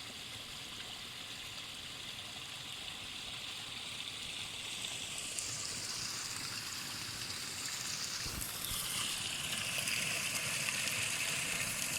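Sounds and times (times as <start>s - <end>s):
water running and splashing: 2.4s - 11.9s.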